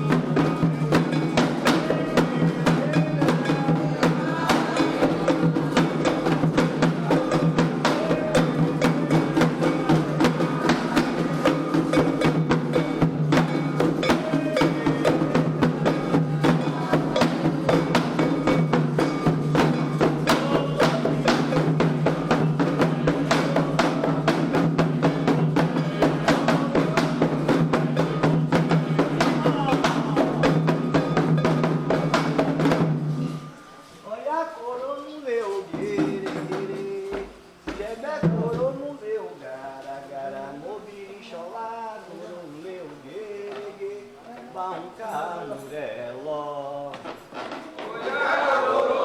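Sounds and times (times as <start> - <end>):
hand drums in fast rhythm: 0.0 - 33.6, 35.7 - 38.8
voices singing: 0.0 - 33.6, 47.8 - 49.0
sharp struck percussion: 0.0 - 34.2.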